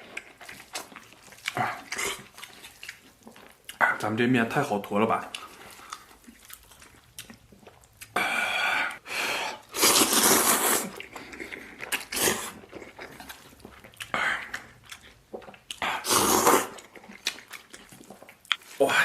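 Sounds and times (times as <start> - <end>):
chewing: 0.0 - 8.2, 9.6 - 18.8
noodles slurped: 9.6 - 18.8.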